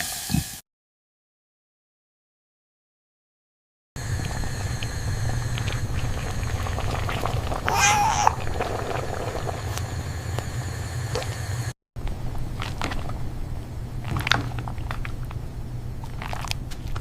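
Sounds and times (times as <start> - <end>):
steady low hum: 4.0 - 17.0
cat meowing: 7.7 - 8.4.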